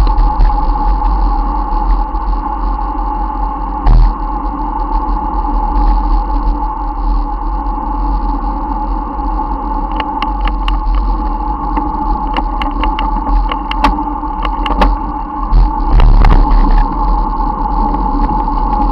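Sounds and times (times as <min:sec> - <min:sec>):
bicycle rolling and wind noise: 0:00.0 - 0:18.9
constant hum: 0:00.0 - 0:18.9
sharp clicks and rattles: 0:09.8 - 0:15.1.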